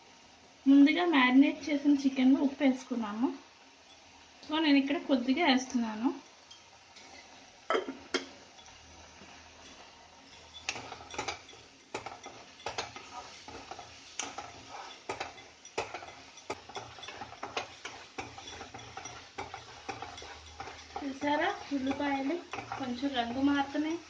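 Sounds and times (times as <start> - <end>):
faint sizzle: 0.0 - 24.0
spoon scraping and knocking pan: 6.2 - 24.0.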